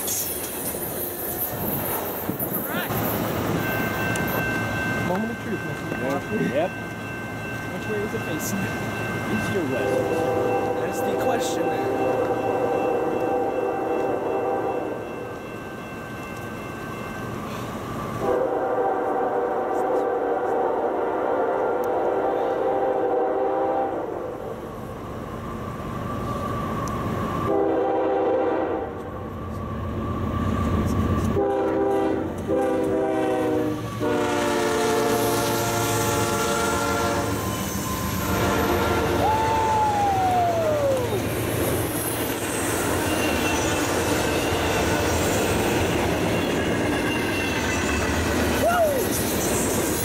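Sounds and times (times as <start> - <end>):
freight train rumbling by: 0.0 - 50.0
locomotive air horn blasts: 9.8 - 15.0, 18.2 - 24.1, 27.5 - 29.0, 31.4 - 37.4, 38.2 - 39.3
wheel squeal: 41.7 - 50.0.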